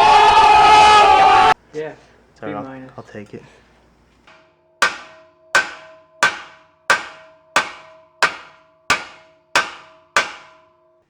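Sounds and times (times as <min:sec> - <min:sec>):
hammer striking metal pipe: 0:04.2 - 0:11.0.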